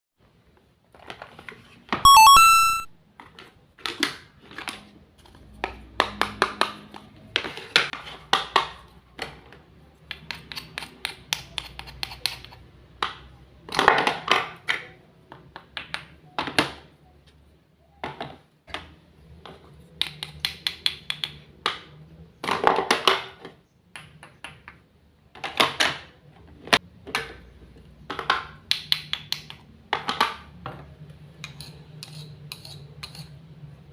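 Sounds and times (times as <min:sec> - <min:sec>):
rising electronic chime: 0:02.1 - 0:02.9
toy kitchenware clicking and tapping: 0:05.6 - 0:16.8, 0:19.5 - 0:26.1, 0:28.1 - 0:30.6.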